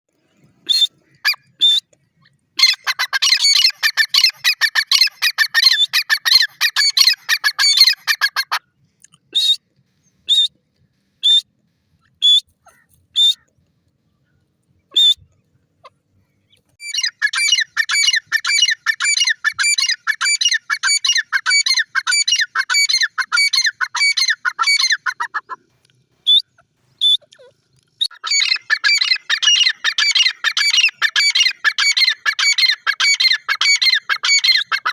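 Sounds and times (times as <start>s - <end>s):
francolin calling: 2.6s - 8.6s, 28.0s - 34.9s.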